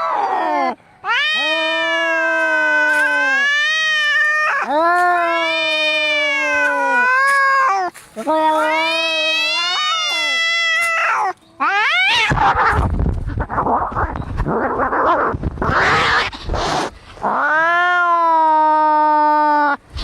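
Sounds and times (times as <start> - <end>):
cats yowling: 0.0 - 12.8, 13.4 - 19.8
cats screeching and hissing: 0.0 - 20.0.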